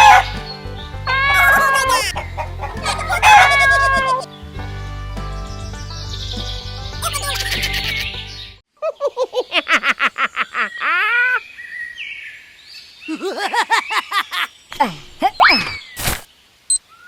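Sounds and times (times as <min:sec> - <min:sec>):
bird chirping rapidly: 0:05.3 - 0:08.6.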